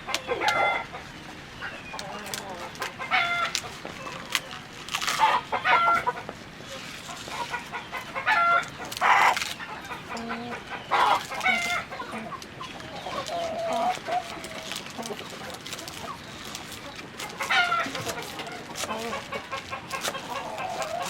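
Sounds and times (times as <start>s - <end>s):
chickens clucking: 0.0s - 21.0s
chicken squawks: 0.1s - 1.0s, 5.1s - 16.3s, 17.2s - 21.0s.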